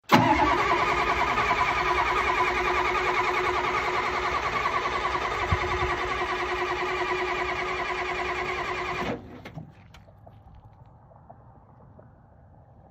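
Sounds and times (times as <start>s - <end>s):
diesel engine cranking: 0.0s - 9.8s.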